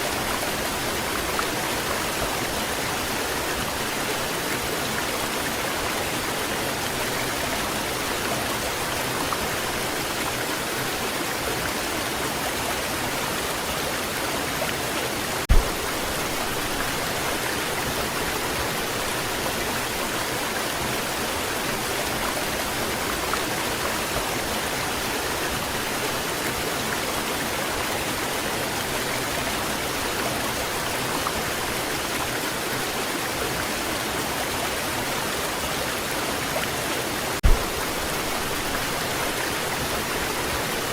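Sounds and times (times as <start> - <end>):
waterfall rushing: 0.0 - 40.9
low thump: 15.5 - 16.1, 37.4 - 38.0.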